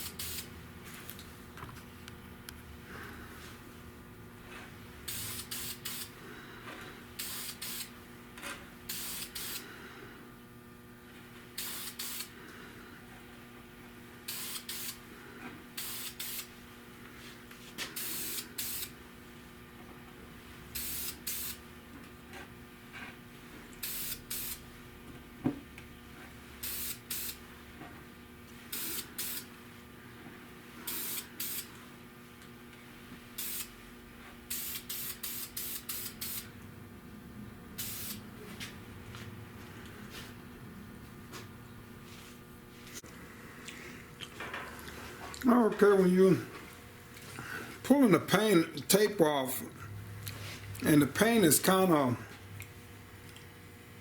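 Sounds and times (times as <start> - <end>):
spray paint hissing in bursts: 0.0 - 0.5, 5.1 - 6.2, 7.2 - 8.0, 8.9 - 9.6, 11.6 - 12.3, 14.3 - 15.0, 15.8 - 16.5, 18.0 - 19.0, 20.8 - 21.6, 23.8 - 24.6, 26.6 - 27.4, 28.7 - 29.5, 30.9 - 31.7, 33.4 - 33.8, 34.5 - 36.5, 37.8 - 38.3.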